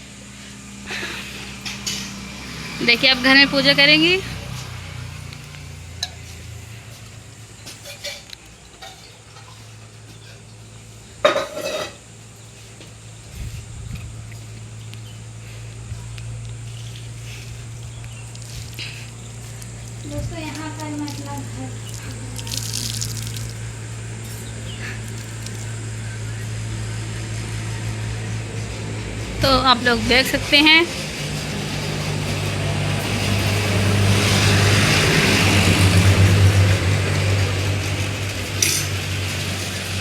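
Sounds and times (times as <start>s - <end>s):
metal dishes and utensils clinking: 7.7s - 9.7s, 11.3s - 12.0s, 38.4s - 40.0s
steady low hum: 9.7s - 40.0s.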